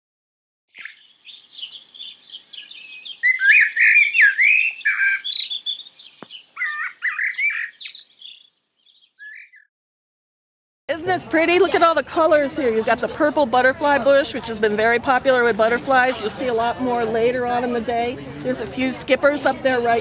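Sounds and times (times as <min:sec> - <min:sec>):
songbirds chirping and singing: 0:00.7 - 0:09.7.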